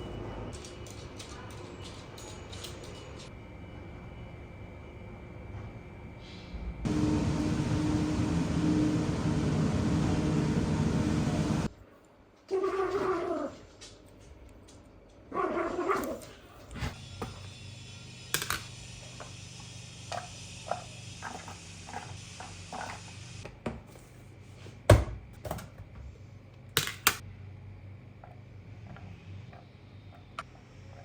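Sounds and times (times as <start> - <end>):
dog whining: 12.5 - 13.6.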